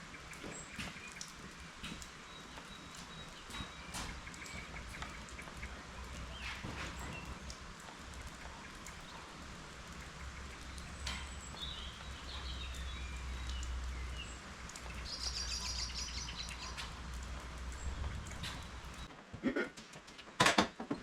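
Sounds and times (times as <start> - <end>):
small birds chirping and trilling: 0.0 - 19.1
rain falling: 0.0 - 20.4.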